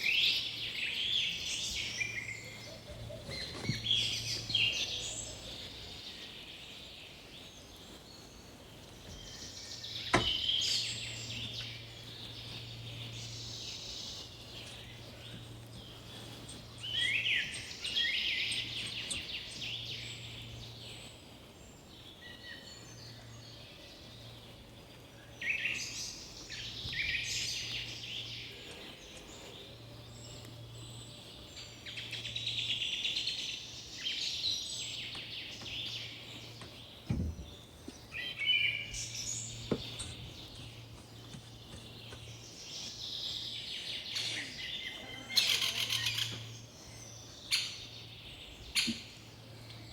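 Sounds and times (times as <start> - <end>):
birds chirping: 0.0 - 49.9
soft knocks: 10.1 - 10.4, 36.6 - 37.5, 39.6 - 40.1.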